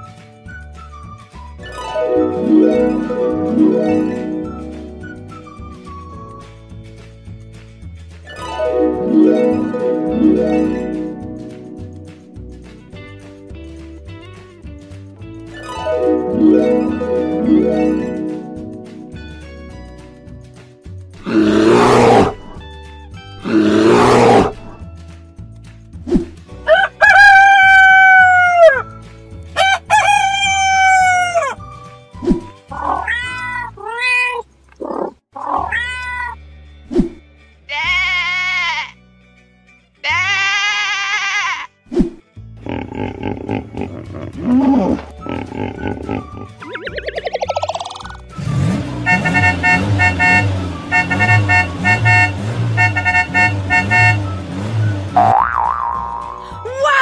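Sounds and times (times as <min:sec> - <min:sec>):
background music with steady beat: 0:00.0 - 0:32.8
rooster crowing: 0:26.7 - 0:28.8, 0:29.6 - 0:31.6
cat meowing: 0:32.8 - 0:34.4, 0:35.0 - 0:36.4
cartoon car horns beeping: 0:48.4 - 0:55.4.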